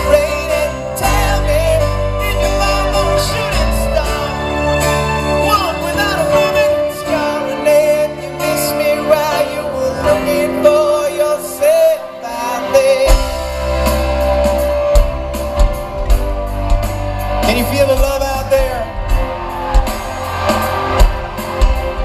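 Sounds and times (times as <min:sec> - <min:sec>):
lead vocal singing: 0:00.0 - 0:14.0
live rock band playing: 0:00.0 - 0:22.0.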